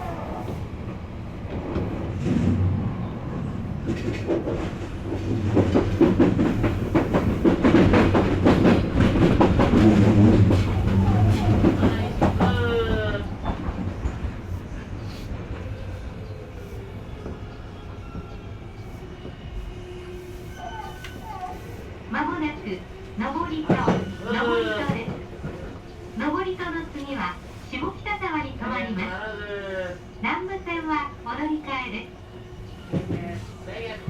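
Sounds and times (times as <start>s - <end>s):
train wheels clattering over rails: 1.4s - 15.7s, 23.0s - 26.1s, 32.8s - 33.5s.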